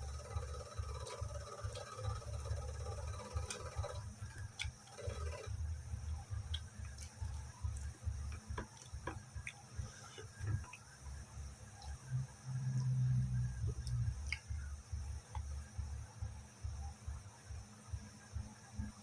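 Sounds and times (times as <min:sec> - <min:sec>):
close chewing with wet clicks: 0:04.4 - 0:04.8, 0:06.4 - 0:10.9, 0:13.8 - 0:14.6.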